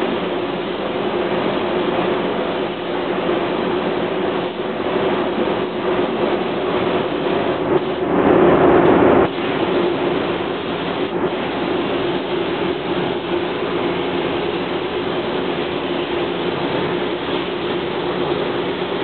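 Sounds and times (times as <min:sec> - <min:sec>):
loud rush of air: 0:00.0 - 0:19.0
machinery drone: 0:00.0 - 0:19.0
rush of air: 0:00.0 - 0:19.0.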